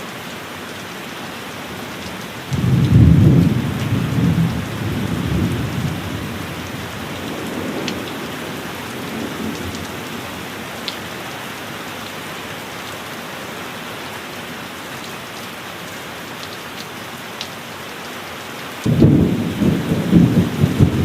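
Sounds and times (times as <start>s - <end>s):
heavy rain hissing: 0.0s - 17.7s, 18.7s - 21.0s
low thunder rumble: 2.5s - 10.3s, 18.9s - 21.0s.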